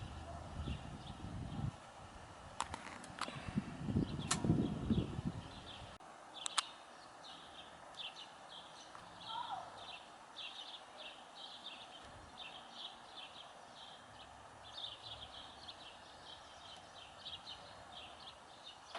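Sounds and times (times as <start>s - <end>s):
faint bird chirping: 4.0s - 18.9s.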